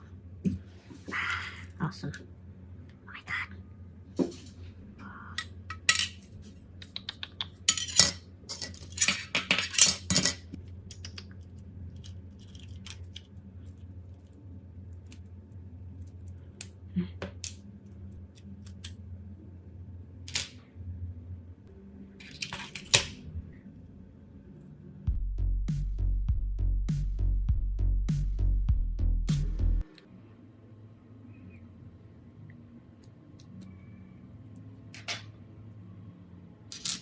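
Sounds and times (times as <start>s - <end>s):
low steady hum: 7.6s - 37.0s
metal tools clinking on surface: 7.7s - 10.4s.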